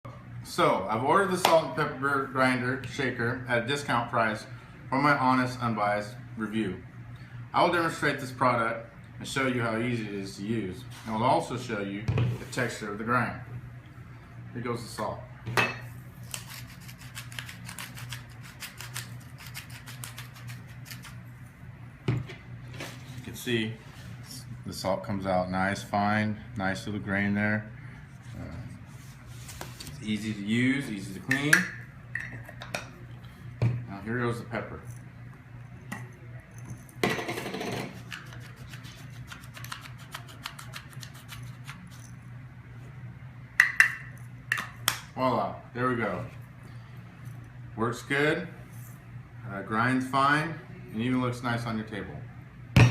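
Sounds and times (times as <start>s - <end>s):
salt grinder crunching: 16.2s - 21.2s.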